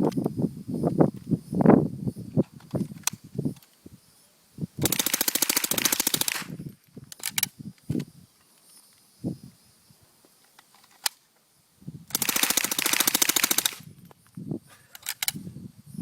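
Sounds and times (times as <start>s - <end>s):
sharp clicks: 2.5s - 3.8s, 4.8s - 9.1s, 10.5s - 11.2s, 12.1s - 15.4s
submachine gun automatic burst: 4.8s - 6.6s, 12.1s - 13.9s.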